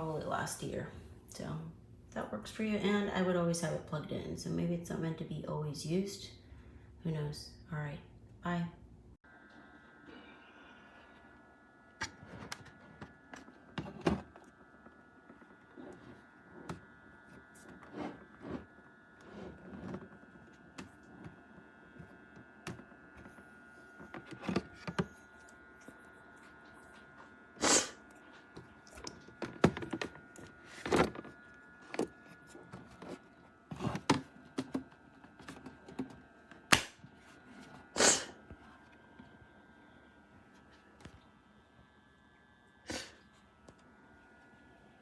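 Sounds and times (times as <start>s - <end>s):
faint high whine: 9.3s - 45.0s.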